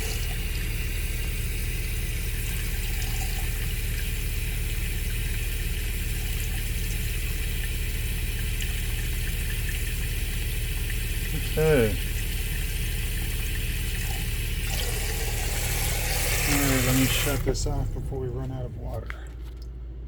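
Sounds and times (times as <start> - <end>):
water running from faucet: 0.0 - 18.3
low mechanical hum: 0.0 - 20.0.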